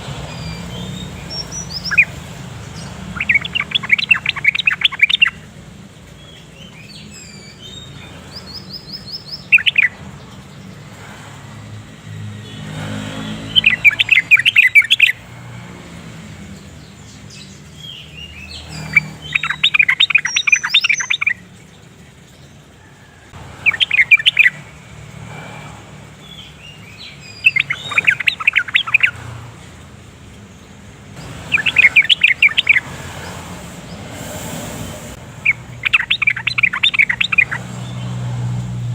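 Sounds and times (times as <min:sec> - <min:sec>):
faint bird chirps: 0:00.0 - 0:05.4, 0:06.2 - 0:10.7, 0:13.2 - 0:15.2, 0:17.2 - 0:21.4, 0:22.8 - 0:24.7, 0:26.2 - 0:29.2, 0:31.4 - 0:33.2, 0:35.4 - 0:38.0
bird chattering song: 0:00.0 - 0:11.4, 0:12.5 - 0:22.7, 0:23.5 - 0:29.6, 0:31.2 - 0:34.5, 0:35.1 - 0:38.9.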